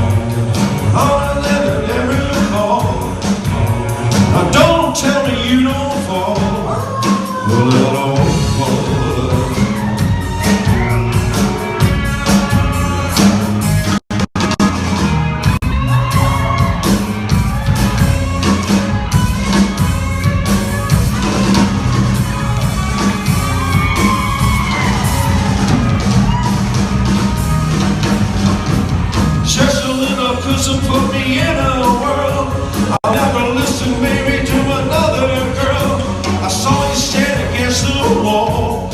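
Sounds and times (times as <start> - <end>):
live rock band: 0.0 - 38.9
man singing: 0.8 - 10.8, 29.4 - 38.9.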